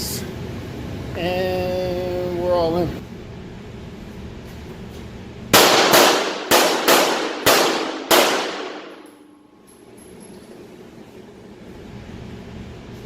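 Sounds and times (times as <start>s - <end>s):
pistol shots: 5.5s - 9.1s.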